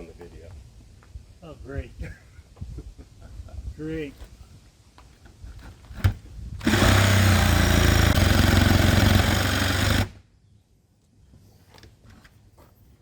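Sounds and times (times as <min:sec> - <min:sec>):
electric jigsaw cutting wood: 0:06.6 - 0:10.2.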